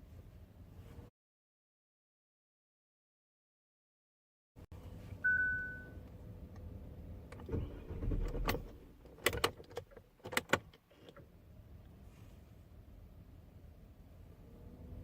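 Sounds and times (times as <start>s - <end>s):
electronic beep: 5.2s - 6.0s.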